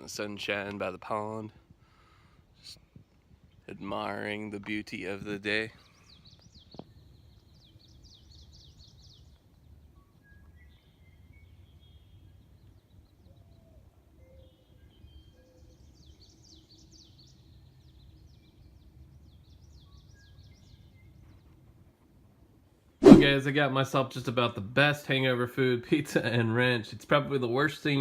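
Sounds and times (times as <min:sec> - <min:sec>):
songbirds chirping: 0:02.4 - 0:21.7.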